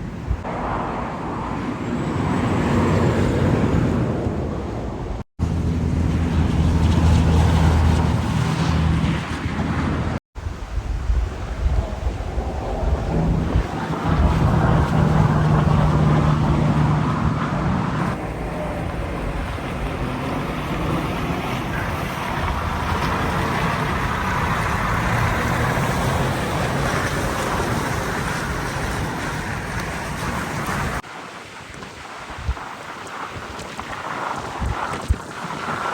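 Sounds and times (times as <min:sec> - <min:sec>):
tyre and road noise: 0:00.0 - 0:10.7, 0:11.3 - 0:35.9
wind on microphone: 0:00.0 - 0:35.9
diesel engine drone: 0:05.4 - 0:10.2, 0:13.2 - 0:31.0.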